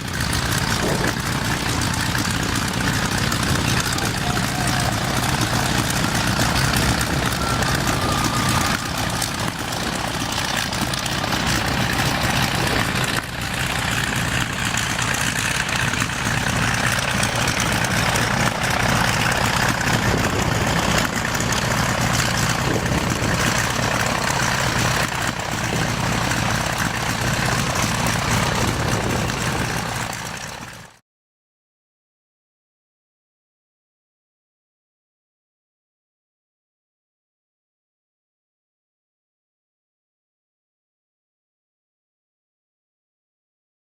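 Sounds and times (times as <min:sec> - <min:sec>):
propeller aircraft engine running: 0:00.0 - 0:31.0.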